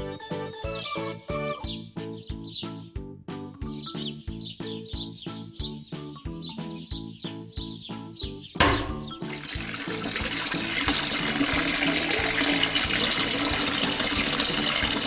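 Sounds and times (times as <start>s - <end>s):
background music with steady beat: 0.0s - 15.0s
liquid pouring: 8.7s - 15.0s.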